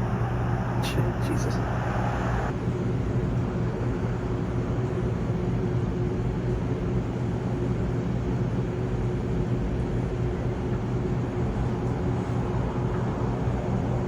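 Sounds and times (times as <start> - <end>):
thin steady tone: 0.0 - 2.5
low mechanical drone: 0.0 - 14.0.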